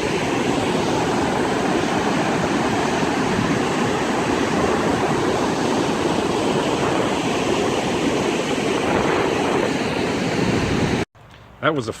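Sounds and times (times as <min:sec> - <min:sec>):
floodwater rushing over dam: 0:00.0 - 0:11.0.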